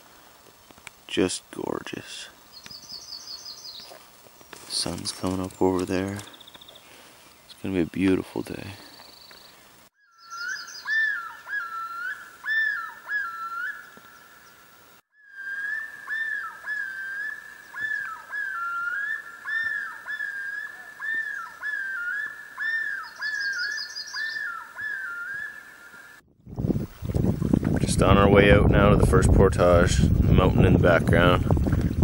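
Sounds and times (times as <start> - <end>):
whistled bird calls: 2.6 - 3.9, 8.9 - 14.6, 15.2 - 26.2
fast high bird trill: 10.0 - 14.5, 15.3 - 25.6.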